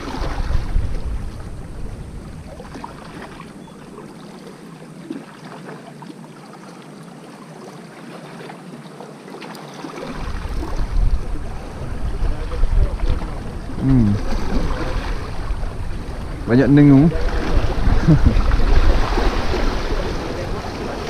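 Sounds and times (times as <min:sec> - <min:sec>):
wind buffeting microphone: 0:00.0 - 0:03.3, 0:10.1 - 0:21.0
small waves lapping rocks: 0:00.0 - 0:21.0.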